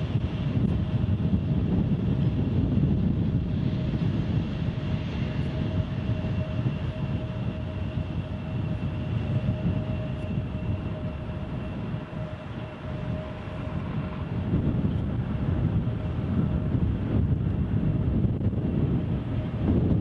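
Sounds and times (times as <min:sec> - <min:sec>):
jet engines whining: 0:00.0 - 0:20.0
wind buffeting microphone: 0:00.0 - 0:20.0.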